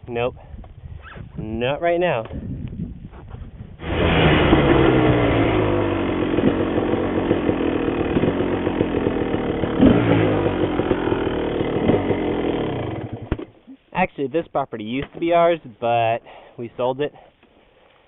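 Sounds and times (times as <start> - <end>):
dirt bike engine under throttle: 3.8 - 13.7.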